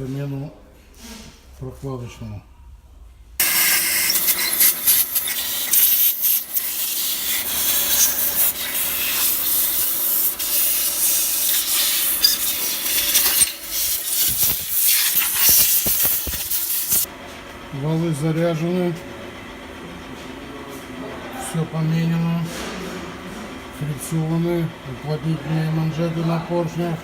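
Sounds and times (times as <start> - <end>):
rough sanding: 3.4 - 17.1.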